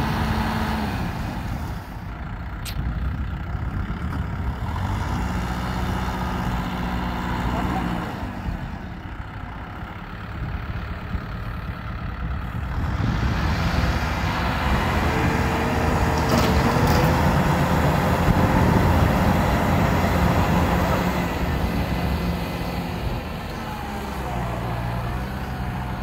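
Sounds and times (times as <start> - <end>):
tractor diesel engine working hard: 0.0 - 26.0.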